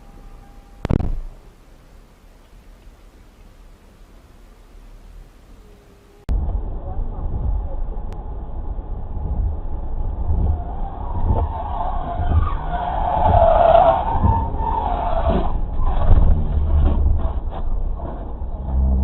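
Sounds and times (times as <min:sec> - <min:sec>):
car driving rumble: 0:00.0 - 0:19.0
car tyres skidding: 0:10.1 - 0:19.0.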